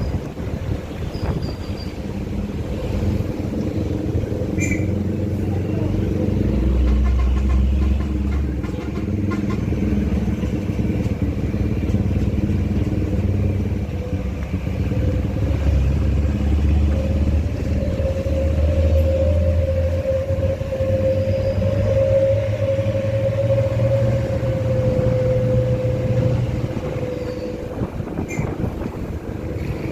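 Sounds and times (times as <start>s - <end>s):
engine whine: 0.0s - 29.9s
vehicle engine droning: 0.0s - 29.9s.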